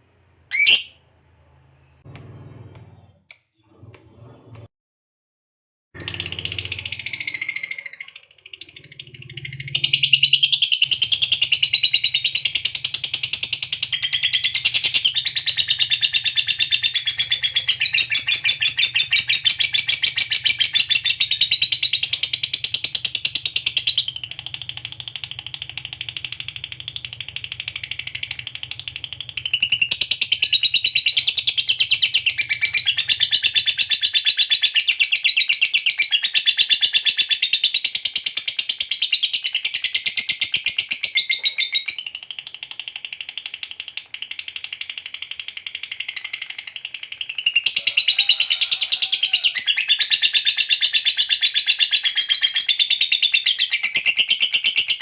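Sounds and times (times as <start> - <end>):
lovebird shrill chatter: 0.5 - 1.0.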